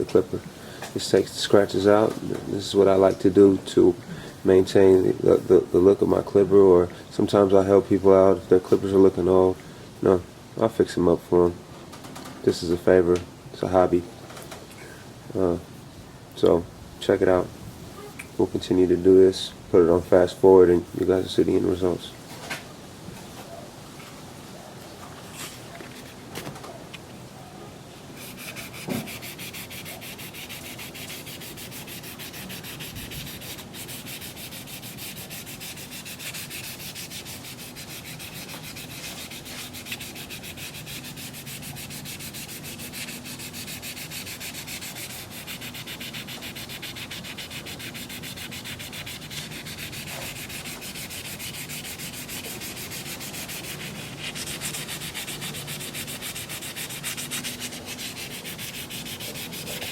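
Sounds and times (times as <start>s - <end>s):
abrasive pad rubbing plastic: 28.2s - 59.9s.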